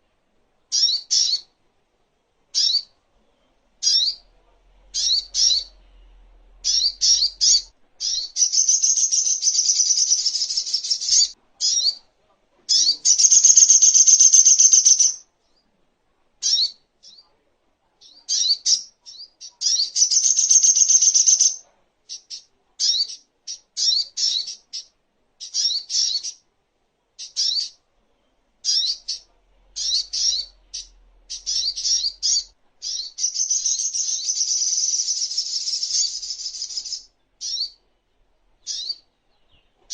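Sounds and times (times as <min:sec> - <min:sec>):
bird chirping and trilling: 0:00.7 - 0:01.6, 0:02.5 - 0:03.0, 0:03.8 - 0:04.3, 0:04.9 - 0:12.1, 0:12.7 - 0:15.2, 0:16.4 - 0:17.2, 0:18.0 - 0:26.4, 0:27.2 - 0:27.8, 0:28.6 - 0:37.9, 0:38.6 - 0:39.9.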